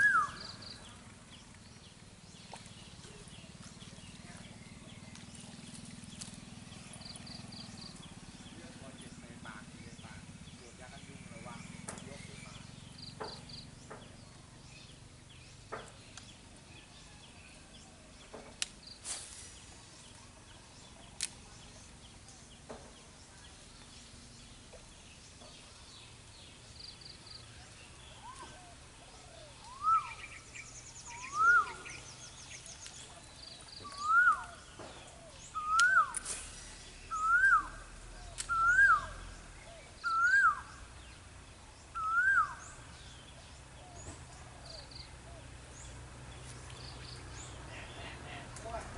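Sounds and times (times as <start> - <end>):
birds chirping faintly: 0.0 - 48.9
bird whistling rising note: 37.0 - 37.8, 38.4 - 39.2, 40.0 - 40.7, 42.0 - 42.6.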